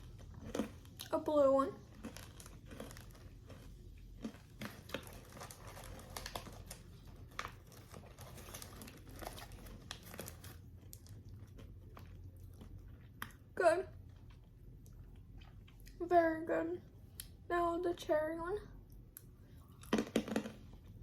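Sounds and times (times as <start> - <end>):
crunchy candy being chewed: 0.0 - 16.0.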